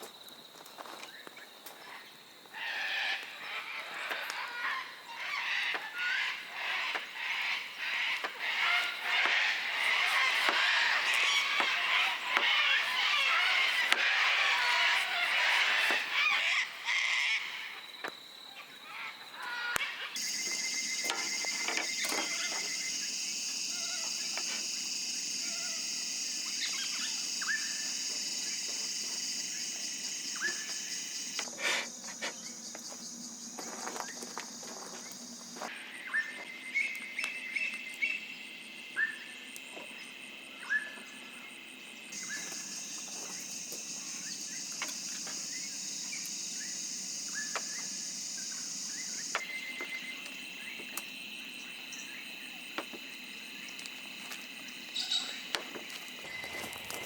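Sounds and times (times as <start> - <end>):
insects droning: 0.0 - 57.0
bird chirps: 17.4 - 31.5, 42.2 - 50.9, 54.8 - 55.5.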